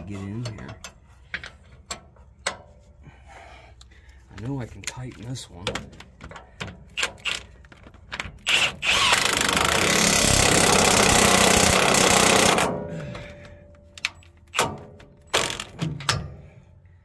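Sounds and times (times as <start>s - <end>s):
impact wrench running: 8.4s - 12.9s.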